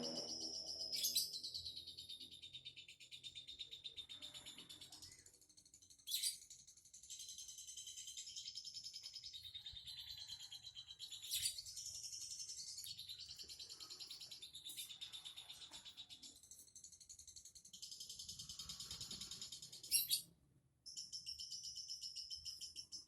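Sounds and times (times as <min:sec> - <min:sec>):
sharp bird calls: 0:00.0 - 0:05.0.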